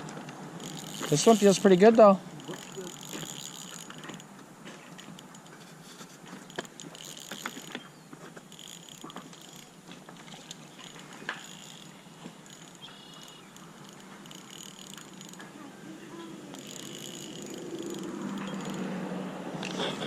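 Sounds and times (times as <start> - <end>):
fishing reel ticking: 0.1 - 19.9
sharp clicks: 16.5 - 18.9.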